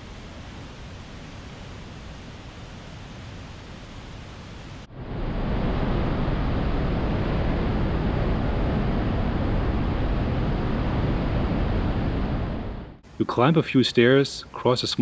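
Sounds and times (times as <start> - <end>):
quiet hiss: 0.0 - 7.4, 13.0 - 15.0.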